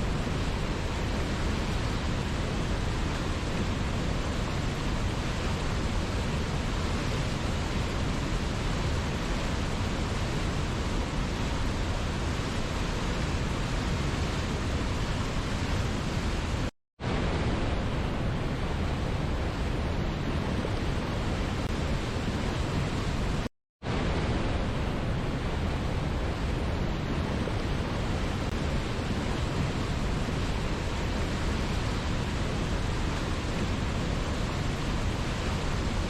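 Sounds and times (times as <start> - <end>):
waterfall rushing: 25.9 - 36.0.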